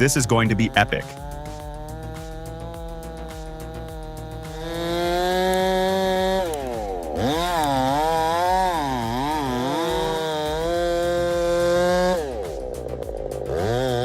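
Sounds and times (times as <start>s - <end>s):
chainsaw running at full throttle: 0.0s - 14.0s.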